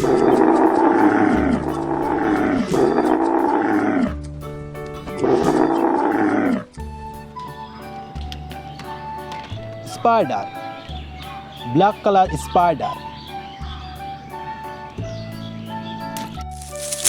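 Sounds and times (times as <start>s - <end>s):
camel grumbling bellows: 0.0s - 4.2s
background music with steady notes: 0.0s - 17.0s.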